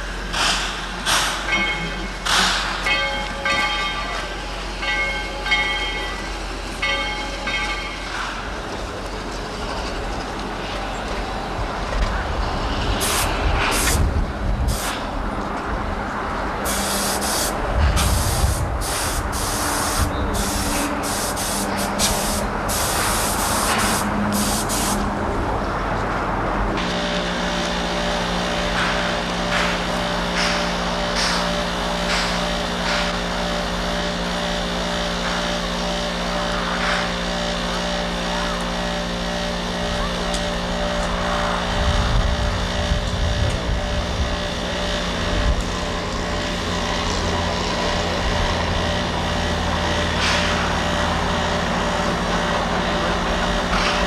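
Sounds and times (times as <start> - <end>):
steady mechanical hum: 0.0 - 54.0
train running noise: 0.0 - 54.0
bursts of hissing air: 13.0 - 15.1, 16.6 - 25.1.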